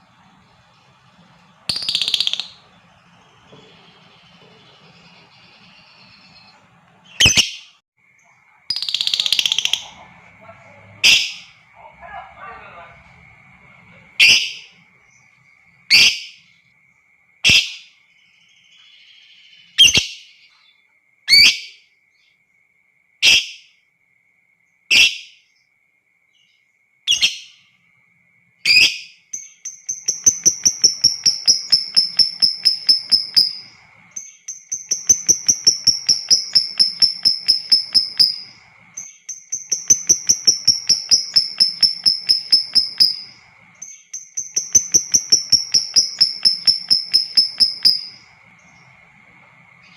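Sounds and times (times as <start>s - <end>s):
lovebird chattering trills: 0.0s - 7.7s, 8.7s - 15.3s, 28.7s - 49.2s
lovebird chirps: 0.0s - 16.7s, 17.4s - 22.4s, 26.4s - 27.8s, 28.6s - 49.9s.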